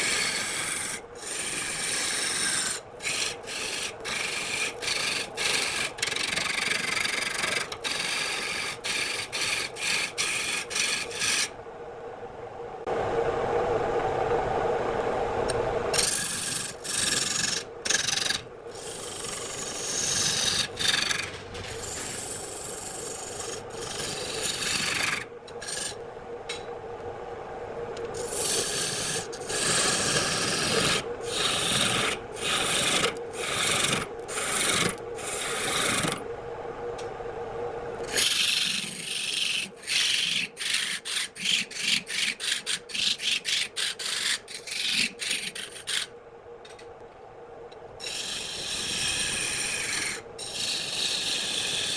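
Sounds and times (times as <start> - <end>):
tool scraping spinning wood: 0.0 - 11.5, 15.9 - 26.0, 28.0 - 36.2, 48.0 - 51.9
lathe hum: 0.0 - 11.6, 12.8 - 46.0, 47.9 - 51.9.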